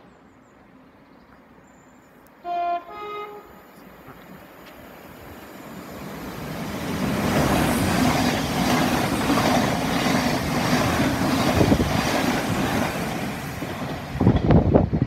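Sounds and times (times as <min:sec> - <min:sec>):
train wheel-on-rail rumble: 0:03.8 - 0:15.0.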